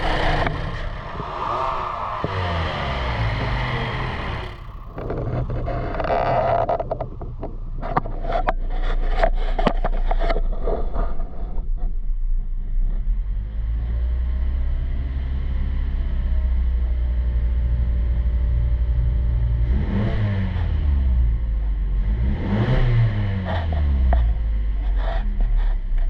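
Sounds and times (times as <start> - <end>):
car engine idling and revving: 0.0 - 11.0, 11.6 - 26.0.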